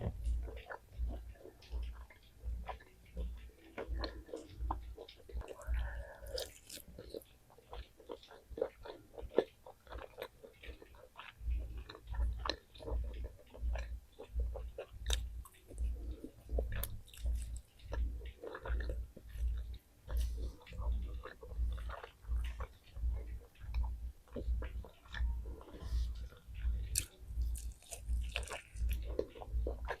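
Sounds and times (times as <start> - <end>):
person chewing food: 0.0 - 30.0
wet mouth clicks: 0.0 - 30.0
small crunches: 26.9 - 29.4.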